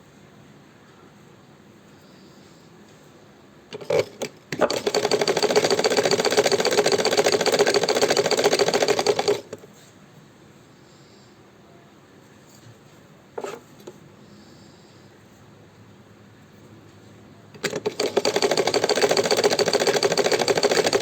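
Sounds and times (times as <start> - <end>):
sewing machine clacks: 3.7 - 9.6, 17.6 - 21.0
sewing machine clatter: 3.7 - 9.7, 17.6 - 21.0.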